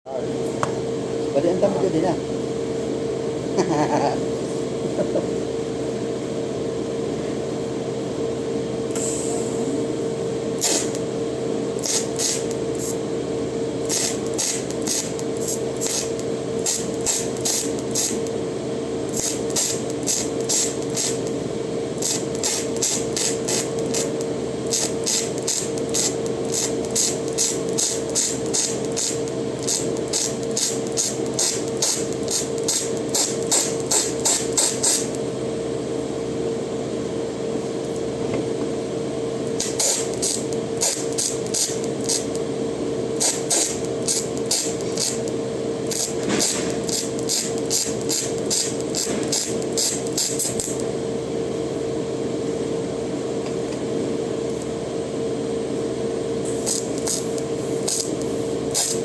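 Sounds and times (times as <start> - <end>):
steady machine hum: 0.1 - 59.0
welding hissing crackles: 11.8 - 13.0, 13.8 - 18.3, 19.1 - 21.3, 22.0 - 35.1, 43.2 - 45.3, 45.9 - 50.8, 56.5 - 59.0.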